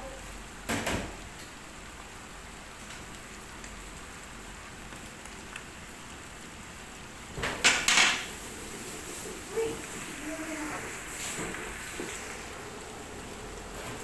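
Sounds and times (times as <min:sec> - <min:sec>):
chicken sizzling in a pot: 0:00.0 - 0:14.0.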